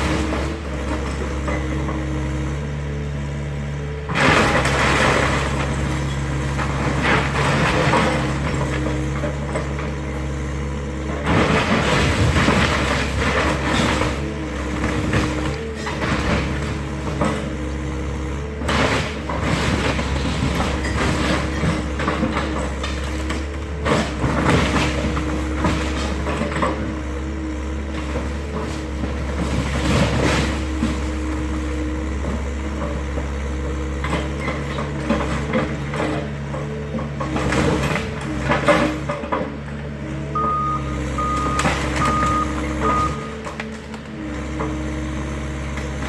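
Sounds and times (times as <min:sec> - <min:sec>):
excavator engine running: 0:00.0 - 0:46.0
building crashing and cracking: 0:04.1 - 0:09.9, 0:11.2 - 0:17.6, 0:18.6 - 0:26.8, 0:27.9 - 0:31.8.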